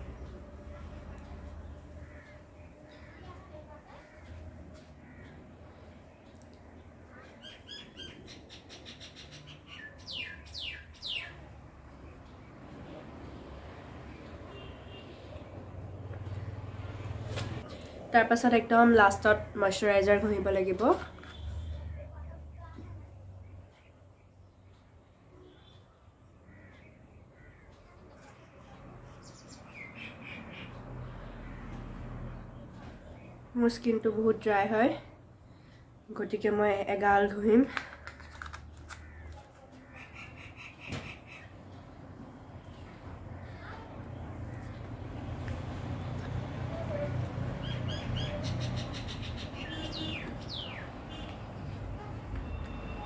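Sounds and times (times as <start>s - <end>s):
faint bird calls: 1.8s - 11.4s, 25.3s - 28.8s
bird singing: 5.1s - 11.5s, 47.6s - 51.8s.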